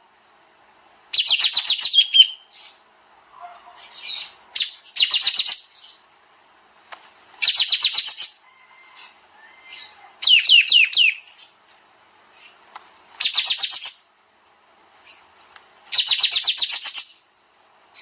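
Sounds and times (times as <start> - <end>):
songbird singing high notes: 1.2 - 2.8, 3.4 - 5.9, 9.8 - 11.4.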